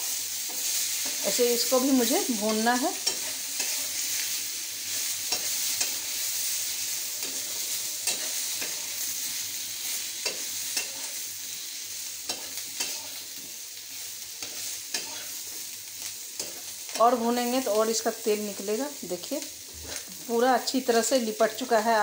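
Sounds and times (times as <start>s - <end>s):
potatoes sizzling in oil: 0.0s - 22.0s
spatula scraping a pan: 2.0s - 4.3s, 4.9s - 9.2s, 9.8s - 13.4s, 14.4s - 15.4s.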